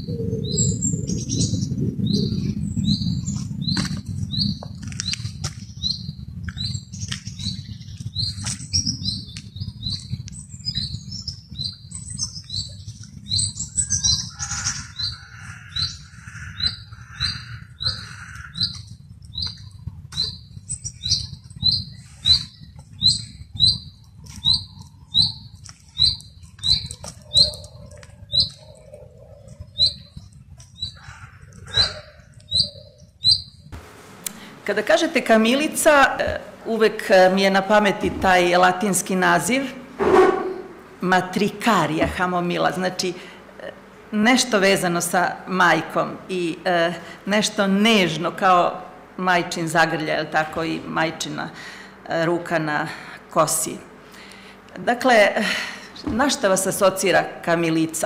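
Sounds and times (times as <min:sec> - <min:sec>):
low rumble: 0:00.0 - 0:25.5
other birds calling: 0:00.0 - 0:46.0, 0:51.2 - 0:57.5.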